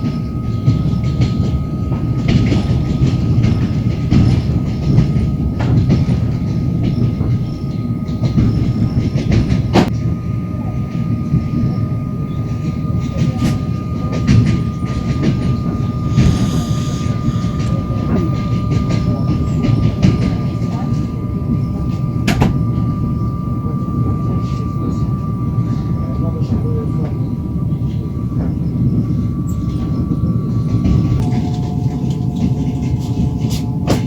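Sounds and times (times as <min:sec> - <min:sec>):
train wheels rumbling on track: 0:00.0 - 0:34.0
thin steady whine: 0:10.0 - 0:34.0.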